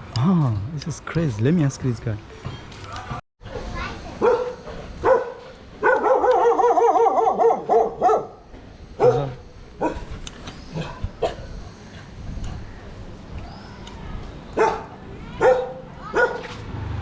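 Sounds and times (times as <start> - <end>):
dogs barking: 4.2 - 8.4, 9.0 - 10.1, 14.5 - 16.5.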